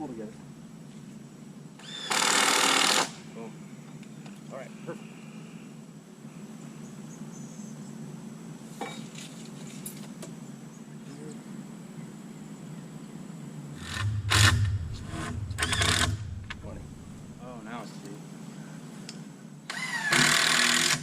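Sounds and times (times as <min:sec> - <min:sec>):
power drill driving screw into wood: 0:01.8 - 0:03.2, 0:13.8 - 0:16.2, 0:19.7 - 0:21.0.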